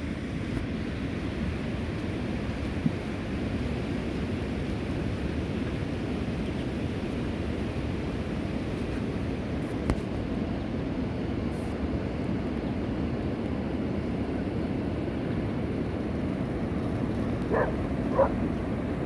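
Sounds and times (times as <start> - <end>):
gull calls: 17.5 - 18.4.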